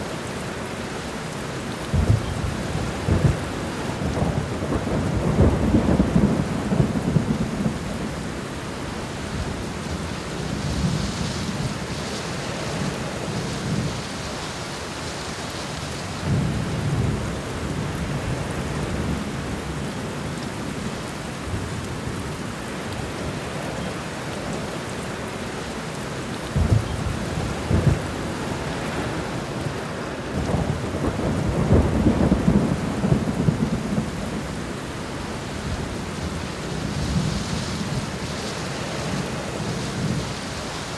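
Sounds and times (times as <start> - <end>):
heavy rain: 0.0 - 40.9
thunder rumbling: 1.9 - 14.1, 26.4 - 40.9.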